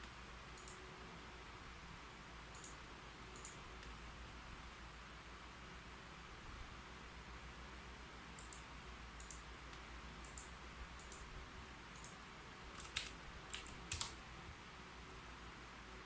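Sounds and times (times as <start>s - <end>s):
keyboard key clicks: 12.8s - 14.2s.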